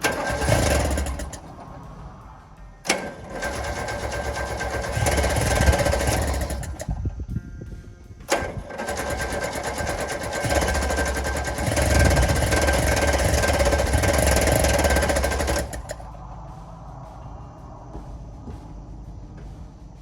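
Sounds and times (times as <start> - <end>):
starter motor cranking engine: 0.0 - 7.2, 8.3 - 16.1.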